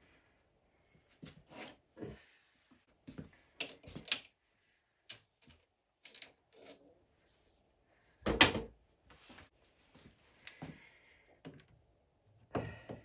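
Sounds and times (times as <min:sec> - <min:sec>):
metal tools clinking: 0:06.0 - 0:06.9.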